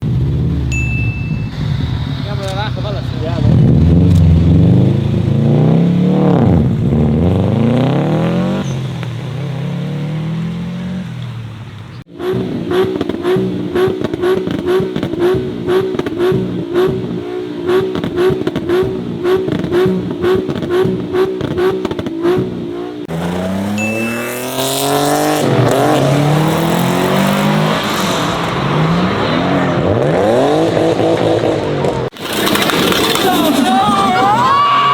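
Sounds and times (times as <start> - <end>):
sharp exhaust pops: 0.0 - 34.4
car engine revving: 0.0 - 34.9.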